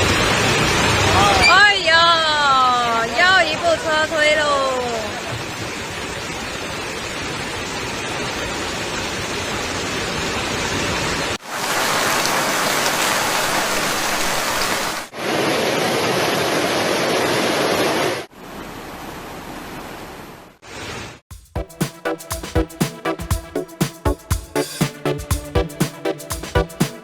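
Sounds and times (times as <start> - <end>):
rushing floodwater: 0.0 - 18.3.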